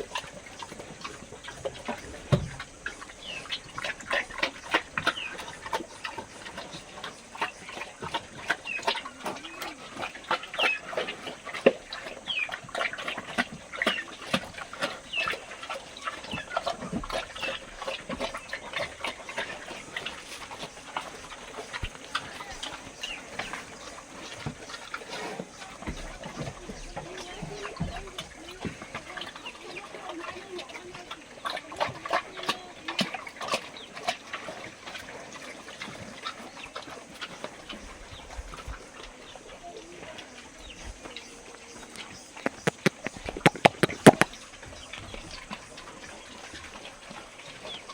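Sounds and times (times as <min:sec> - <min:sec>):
chickens clucking: 0:40.6 - 0:44.6
animals squeaking and chirping: 0:40.6 - 0:45.0
clicking and scuffling: 0:41.9 - 0:44.3.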